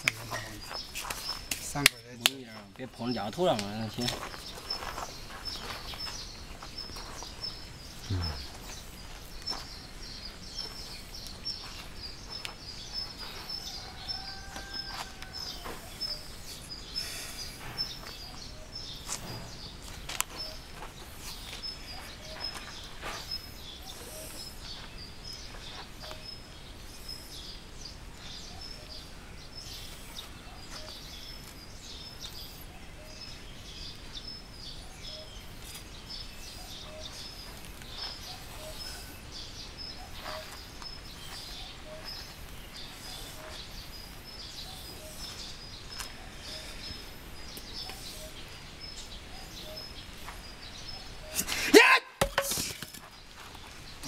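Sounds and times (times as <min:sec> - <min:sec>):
bird chirping: 0:00.0 - 0:54.0
sharp knock: 0:52.2 - 0:52.9.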